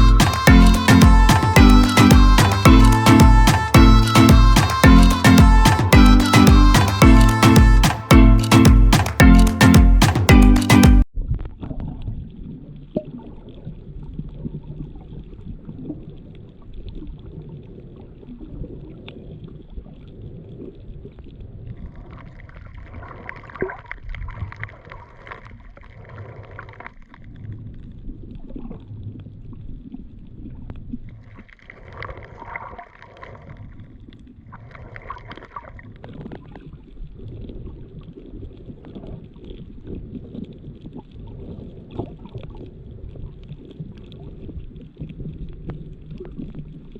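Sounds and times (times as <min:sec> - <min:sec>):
higher steady hum: 0:00.0 - 0:11.0
underwater rumble and gurgle: 0:11.2 - 0:46.9.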